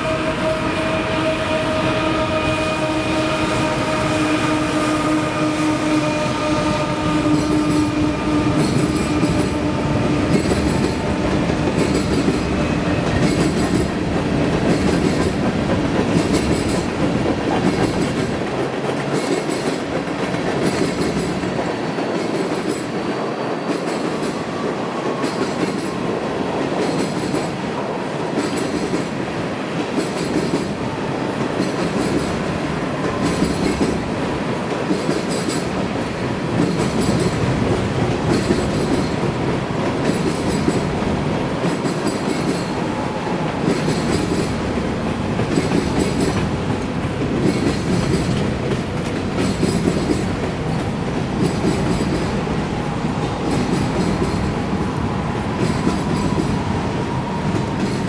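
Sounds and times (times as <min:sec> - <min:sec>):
railroad cars rumbling: 0:00.0 - 0:58.0
wheels clacking over rail joints: 0:34.7 - 0:54.9.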